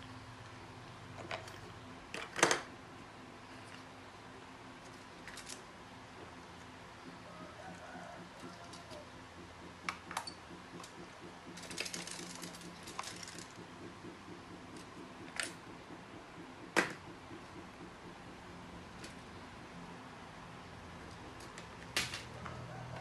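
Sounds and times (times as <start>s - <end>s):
faint steady hum: 0.0s - 23.0s
sharp clicks and knocks: 7.0s - 19.4s
rattling clicks: 9.8s - 13.7s.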